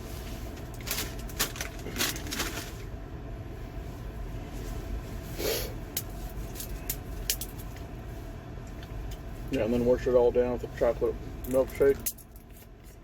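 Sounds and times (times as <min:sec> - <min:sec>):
chip bag crackling: 0:00.7 - 0:02.8.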